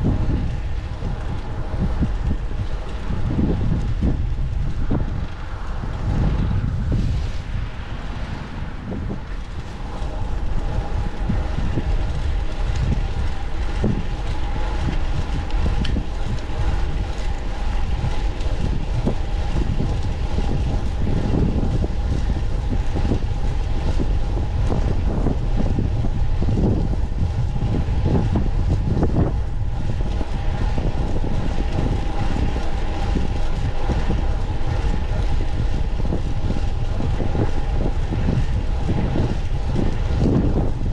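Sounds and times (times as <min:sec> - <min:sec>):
faint steady hum: 0:00.0 - 0:40.9
wind buffeting microphone: 0:00.0 - 0:40.9.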